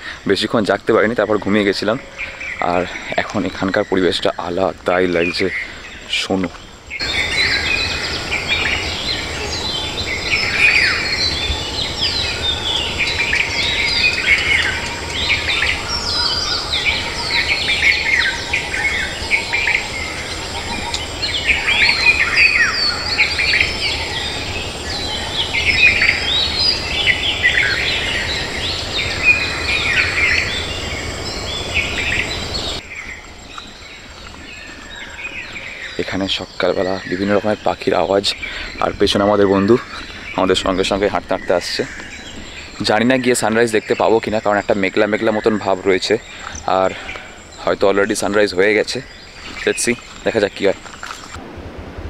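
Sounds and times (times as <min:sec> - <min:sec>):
birds chirping and whistling: 0:00.0 - 0:51.4.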